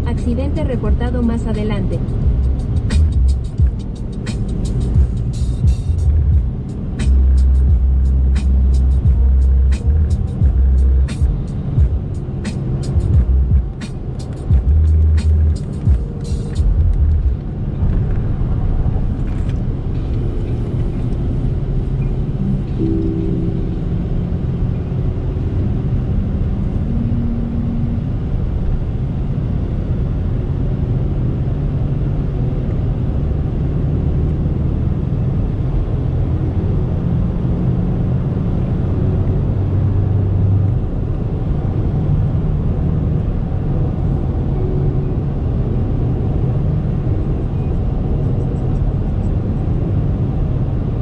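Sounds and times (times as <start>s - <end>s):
tyre and road rumble: 0.0s - 22.8s
diesel engine drone: 0.0s - 51.0s.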